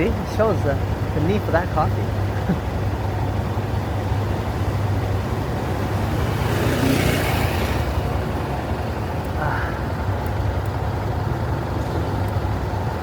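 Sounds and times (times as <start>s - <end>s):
road and traffic noise: 0.0s - 13.0s
small motorcycle engine running: 2.8s - 13.0s.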